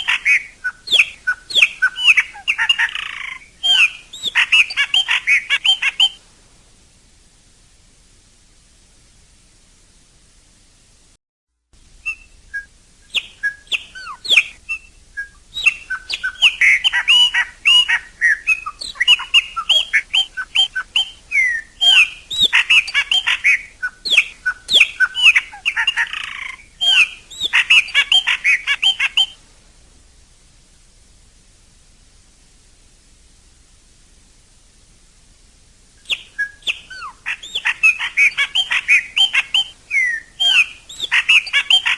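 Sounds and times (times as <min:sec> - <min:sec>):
bird singing whistled chirps: 0:00.0 - 0:06.2, 0:12.0 - 0:29.4, 0:36.0 - 0:41.9.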